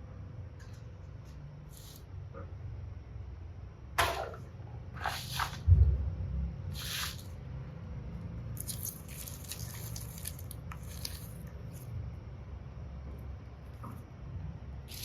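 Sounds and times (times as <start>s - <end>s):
slime squelching: 6.7s - 7.3s, 8.5s - 12.0s.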